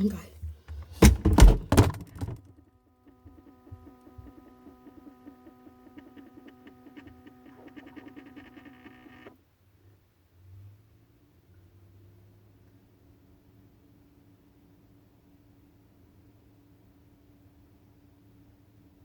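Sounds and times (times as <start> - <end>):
refrigerator motor hum: 0.5 - 2.4.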